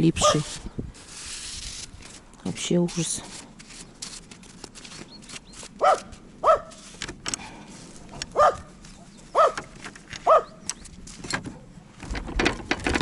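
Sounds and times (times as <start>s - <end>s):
dog yelping barks: 0.2s - 0.5s, 5.8s - 6.8s, 8.3s - 8.7s, 9.3s - 10.6s.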